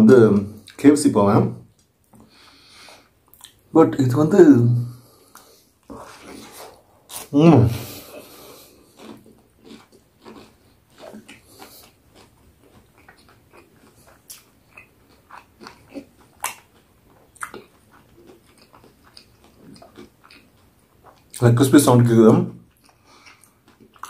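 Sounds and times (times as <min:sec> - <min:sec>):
crunchy biting and chewing: 0:05.2 - 0:21.4.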